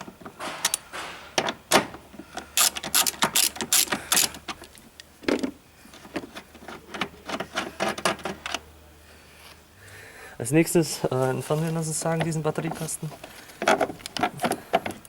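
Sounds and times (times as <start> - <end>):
ratchet wrench clicking: 2.6 - 4.4.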